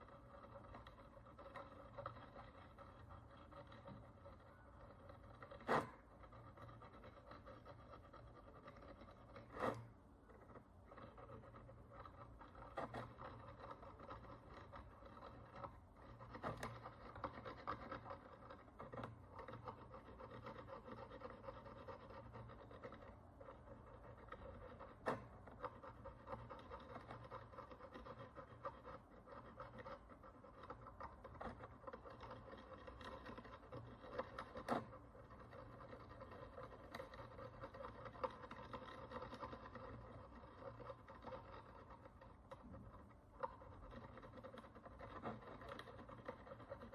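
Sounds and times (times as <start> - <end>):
tool scratching coin: 0.0 - 25.0.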